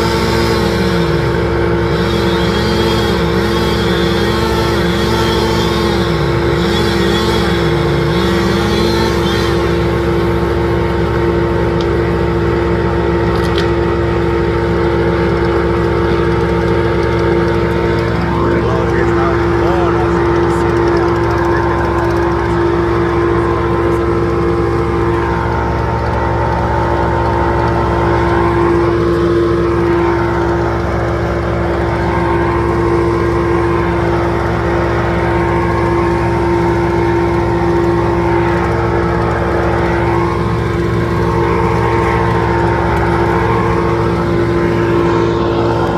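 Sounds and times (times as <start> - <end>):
engine droning: 0.0 - 45.9.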